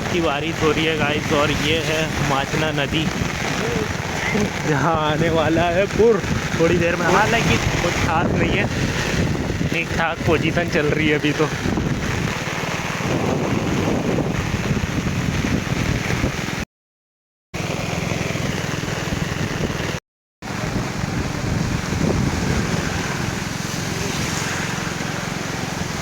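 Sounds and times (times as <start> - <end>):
river rushing: 0.0 - 10.3, 20.5 - 26.0
wind buffeting microphone: 0.0 - 16.6, 19.1 - 26.0.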